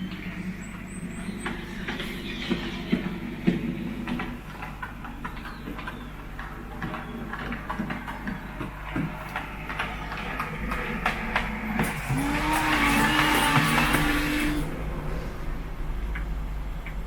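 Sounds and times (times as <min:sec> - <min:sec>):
model train wheels clicking: 0:01.4 - 0:14.8.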